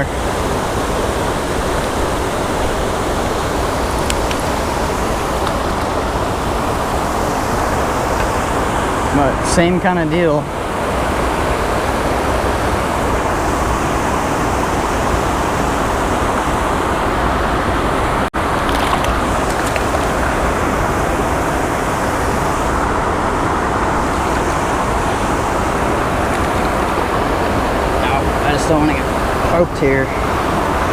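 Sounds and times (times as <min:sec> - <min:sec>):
water pouring over spillway: 0:18.4 - 0:21.1, 0:25.5 - 0:29.0.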